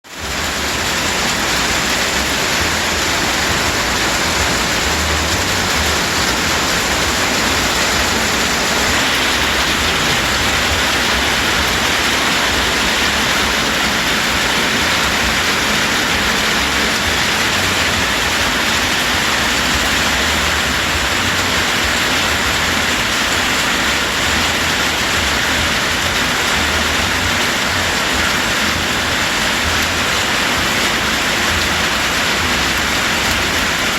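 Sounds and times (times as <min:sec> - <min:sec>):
heavy rain falling: 0:00.0 - 0:33.9
low rumble: 0:00.2 - 0:23.0.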